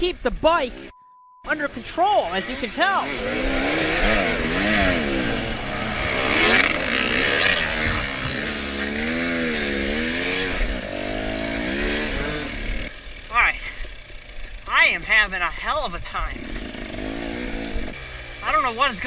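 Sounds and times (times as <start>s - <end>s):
dirt bike engine revving: 1.5s - 19.0s.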